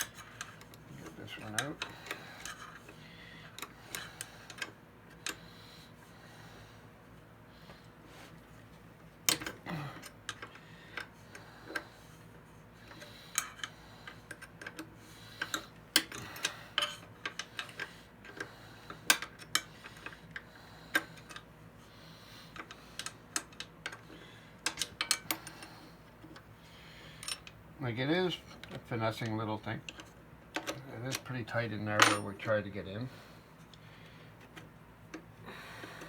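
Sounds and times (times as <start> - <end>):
hand tools clicking and tapping metal: 0.0 - 5.5, 12.9 - 21.5, 22.5 - 26.5, 28.5 - 32.6.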